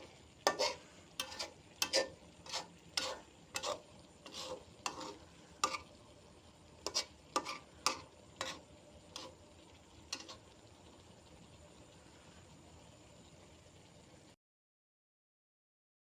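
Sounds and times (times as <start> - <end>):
utensil scraping food in pan: 0.0 - 10.7
faint frying sizzle: 0.0 - 14.4.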